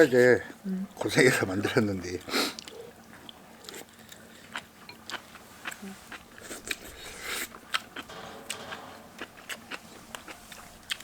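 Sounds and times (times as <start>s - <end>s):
chewing and biting food: 2.5s - 8.1s.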